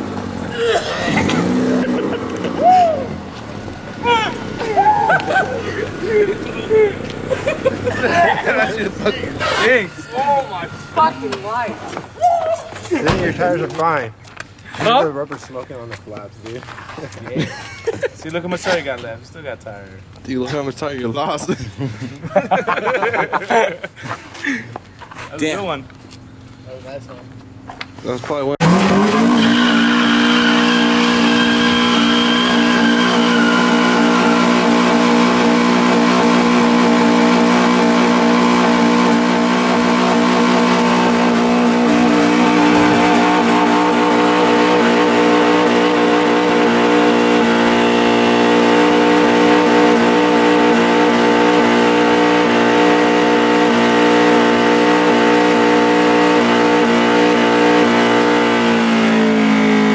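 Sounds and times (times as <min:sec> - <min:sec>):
car engine at high revs: 0:00.0 - 0:12.1, 0:28.6 - 0:59.9
tyres spinning on wet pavement: 0:28.6 - 0:50.4.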